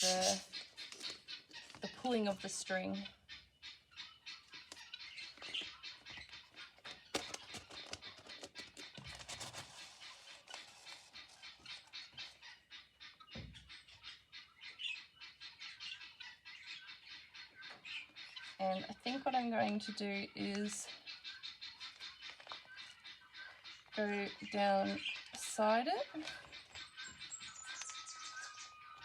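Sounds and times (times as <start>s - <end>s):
paper and thread rustling: 7.1s - 11.9s.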